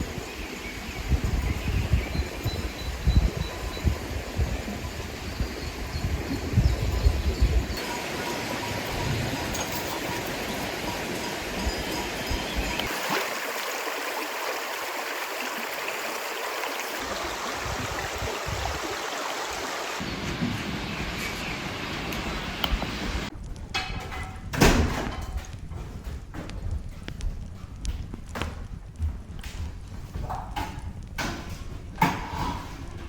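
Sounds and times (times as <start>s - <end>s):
running water rushing: 7.7s - 21.0s.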